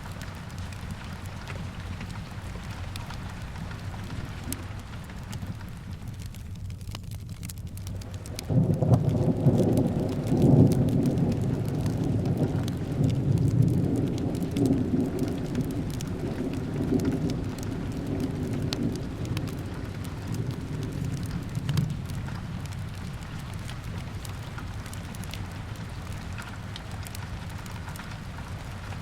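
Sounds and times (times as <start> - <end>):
small crackles: 0.0 - 29.0
steady rain: 0.0 - 29.0
thunder rumbling: 7.9 - 29.0.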